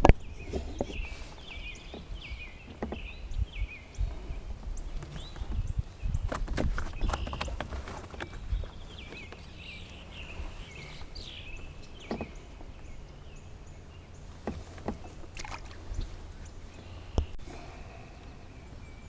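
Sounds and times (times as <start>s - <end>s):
bird singing: 0.0s - 19.0s
wind rumbling on microphone: 0.0s - 19.0s
knocks against canoe hull: 12.0s - 12.7s, 14.4s - 16.1s.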